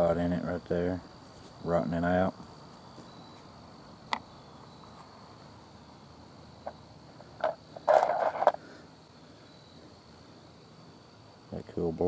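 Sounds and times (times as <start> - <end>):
cricket trilling: 0.0 - 12.0.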